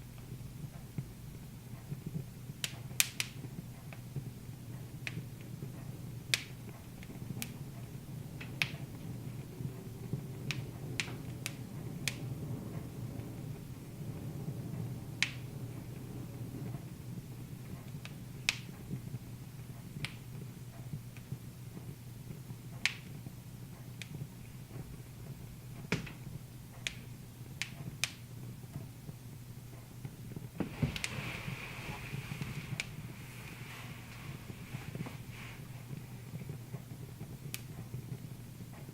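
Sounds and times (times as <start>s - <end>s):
fire hissing: 0.0s - 38.9s
wood fire crackling: 0.0s - 38.9s
low hum: 3.4s - 27.6s.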